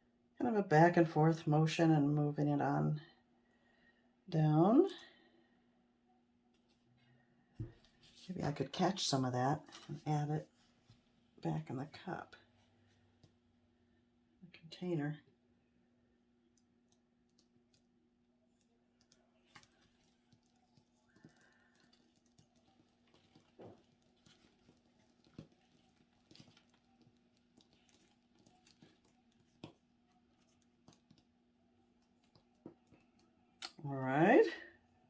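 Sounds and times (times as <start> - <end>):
faint light clicks and taps: 18.6 - 33.8.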